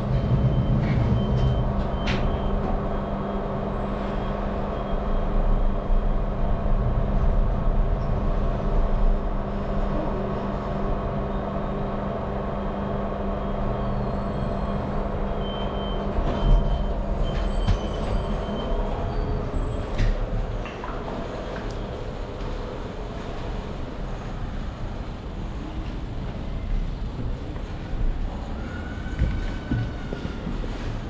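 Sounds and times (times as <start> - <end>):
road and engine noise: 0.0 - 31.0.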